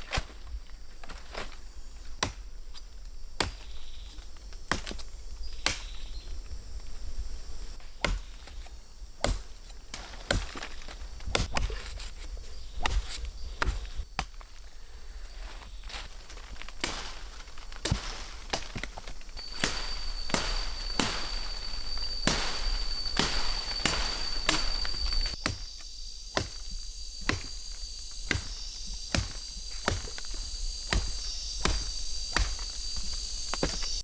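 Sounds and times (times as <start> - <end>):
high-pitched insect whine: 0.8 - 9.7, 14.7 - 34.0
sharp knocks: 17.8 - 25.6.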